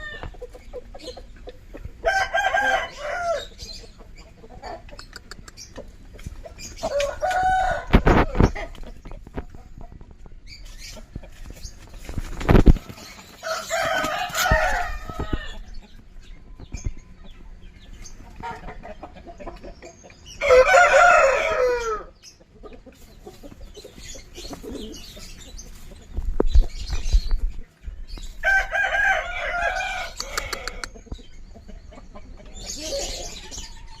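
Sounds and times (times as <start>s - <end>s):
chickens clucking: 0.0s - 34.0s
rooster crowing: 2.0s - 3.5s, 6.9s - 8.0s, 13.4s - 15.6s, 20.4s - 22.1s, 28.4s - 30.9s.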